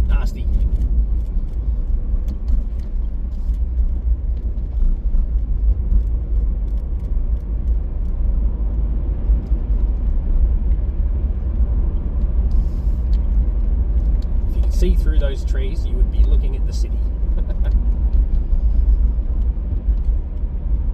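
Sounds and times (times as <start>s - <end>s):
car driving on road: 0.0s - 20.9s.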